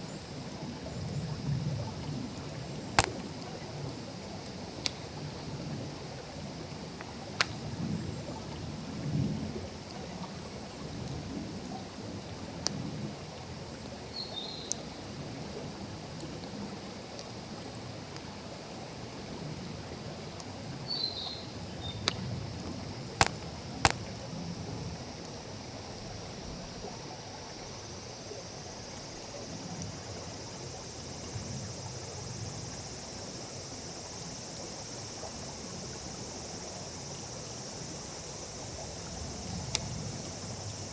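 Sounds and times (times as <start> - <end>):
insects chirring: 0.0 - 8.7, 19.0 - 40.9
bonfire crackling: 2.9 - 3.6, 22.0 - 24.3
burning wood popping: 3.0 - 3.5, 23.2 - 24.2.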